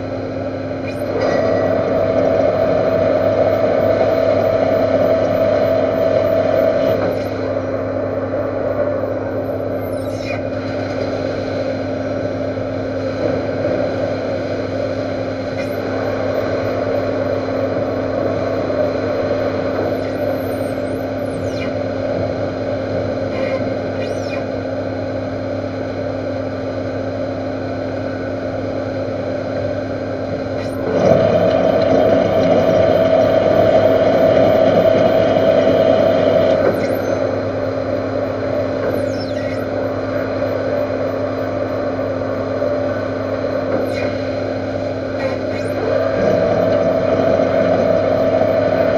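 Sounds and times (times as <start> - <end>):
lathe whine: 0.0 - 48.9
metal lathe humming: 30.6 - 48.9.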